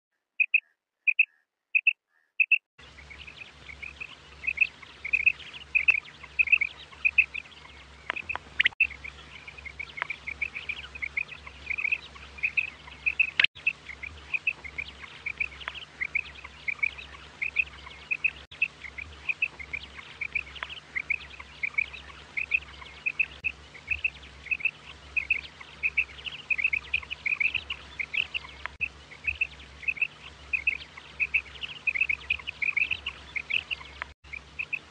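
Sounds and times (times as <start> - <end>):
quail chirping calls: 0.4 - 34.9
low hum and hiss: 2.8 - 34.9.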